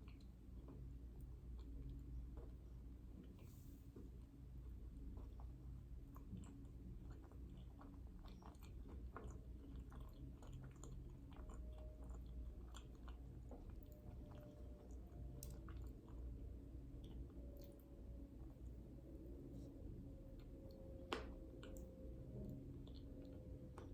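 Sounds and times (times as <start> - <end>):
person chewing food: 0.0 - 23.9
low hum: 10.7 - 23.9.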